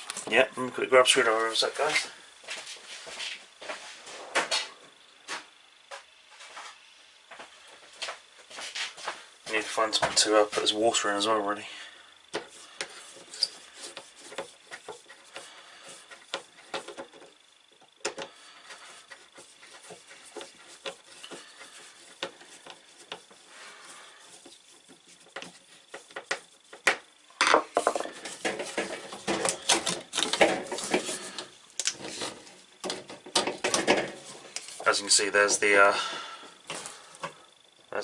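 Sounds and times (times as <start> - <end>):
faint high whine: 0.0 - 38.0
hands handling hoses and fittings: 12.3 - 35.6.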